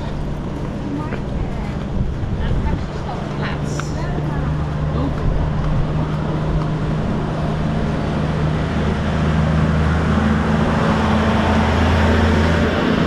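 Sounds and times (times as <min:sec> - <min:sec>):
road noise: 0:00.0 - 0:13.0
vehicle engine humming: 0:00.0 - 0:13.0.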